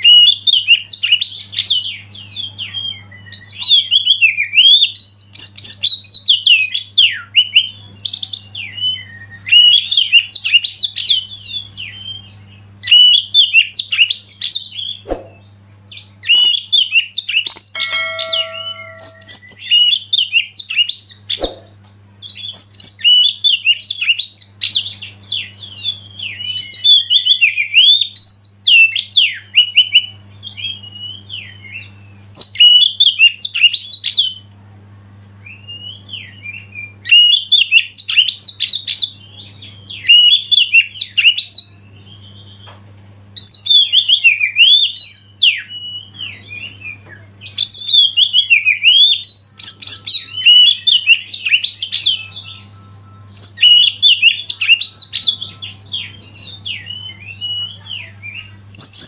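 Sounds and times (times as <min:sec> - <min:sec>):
bird singing chirps and whistles: 0:00.0 - 0:34.5, 0:35.4 - 0:59.0
steady low hum: 0:14.6 - 0:16.9, 0:17.6 - 0:20.1
brief steady pitched tone: 0:17.8 - 0:19.5.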